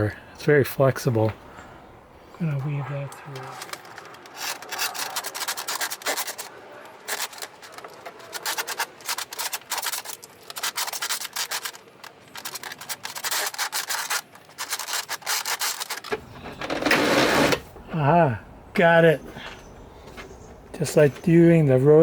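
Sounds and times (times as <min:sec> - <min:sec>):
steel cable scraping and rubbing: 0:02.6 - 0:17.7.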